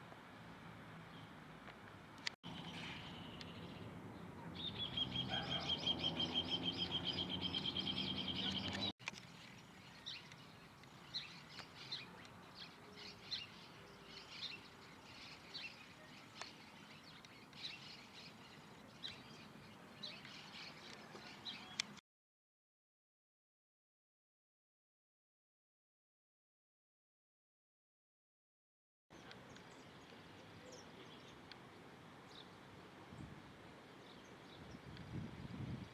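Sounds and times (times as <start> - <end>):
bird chirps: 2.5 - 22.0
bird trill: 4.5 - 21.8.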